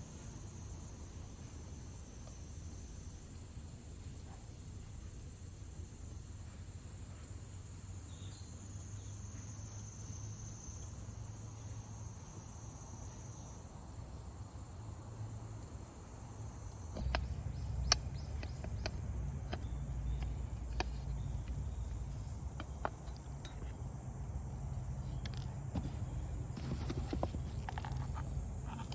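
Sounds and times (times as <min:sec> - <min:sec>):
insects trilling: 0:00.0 - 0:28.9
irregular clicks and knocks: 0:17.0 - 0:23.9, 0:24.7 - 0:28.9.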